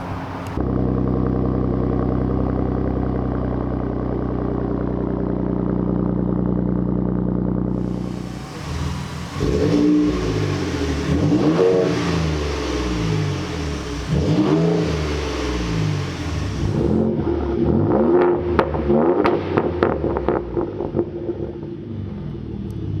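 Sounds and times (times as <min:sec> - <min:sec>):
engine revving: 0:00.0 - 0:01.2, 0:07.7 - 0:21.8
exhaust crackles and pops: 0:07.7 - 0:17.2.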